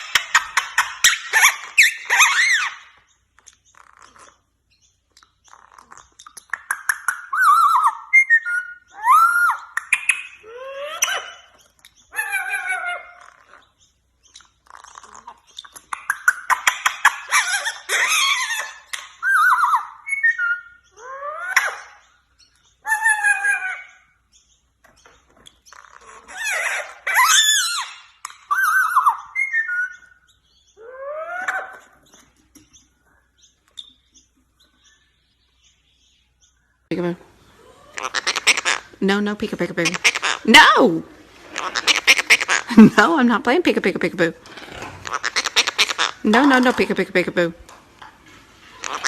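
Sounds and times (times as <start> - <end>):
parrot whistles and squawks: 0.0 - 4.4, 5.4 - 24.2, 25.7 - 32.3, 37.5 - 39.0, 39.6 - 42.8, 44.7 - 46.8, 48.6 - 49.0
faint chirps and clicks: 2.8 - 12.2, 13.1 - 17.3, 18.8 - 22.9, 23.9 - 26.3, 28.2 - 30.8, 31.4 - 40.5
parrot clicks and chatter: 5.0 - 7.9, 14.3 - 19.8, 37.7 - 40.8, 41.4 - 49.0.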